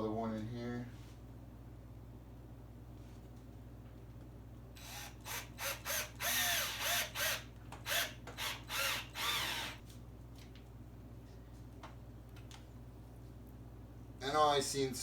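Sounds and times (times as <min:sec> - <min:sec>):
power drill driving screws into wood: 0:04.8 - 0:09.8.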